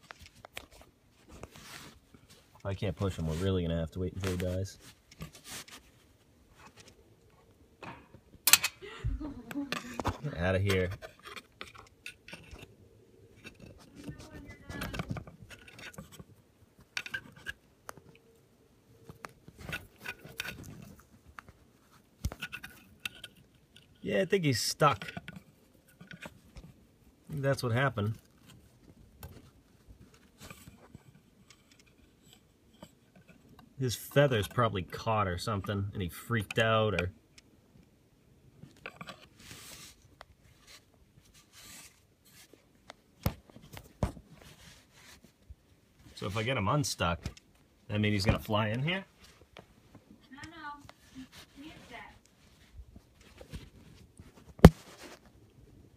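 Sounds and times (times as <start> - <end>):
scratching and scraping: 0.0 - 7.5, 9.6 - 18.2, 19.0 - 26.8, 38.6 - 42.7, 50.2 - 55.4
soft scraping and rubbing: 0.0 - 7.5, 38.7 - 42.7, 43.5 - 46.9, 49.0 - 55.4.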